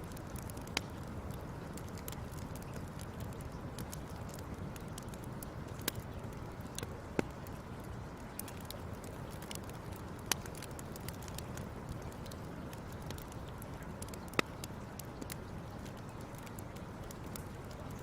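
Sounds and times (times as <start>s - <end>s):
fire crackling: 0.0s - 18.0s.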